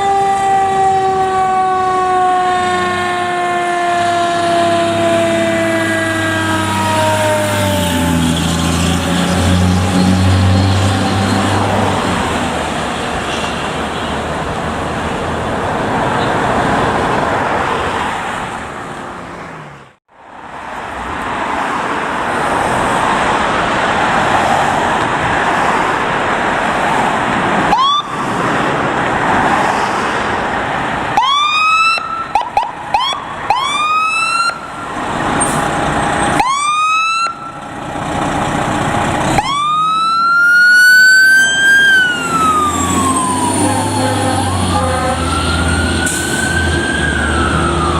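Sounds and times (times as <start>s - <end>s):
siren whooping and wailing: 0.0s - 12.3s, 27.7s - 28.2s, 31.2s - 35.1s, 36.3s - 37.7s, 39.4s - 47.9s
fire truck rushing by: 0.0s - 47.9s.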